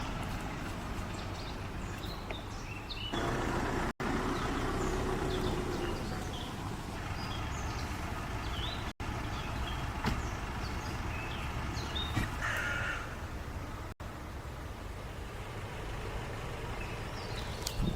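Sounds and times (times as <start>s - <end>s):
bird chirps: 1.1s - 3.3s.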